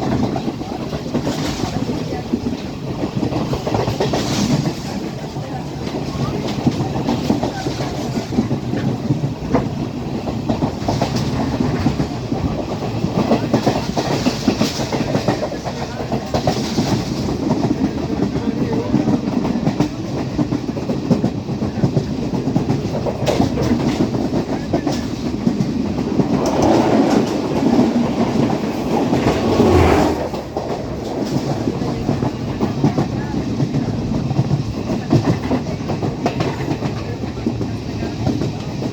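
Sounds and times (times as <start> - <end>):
train rumbling and rattling: 0.0 - 38.9
wheels clicking over rails: 0.0 - 38.9.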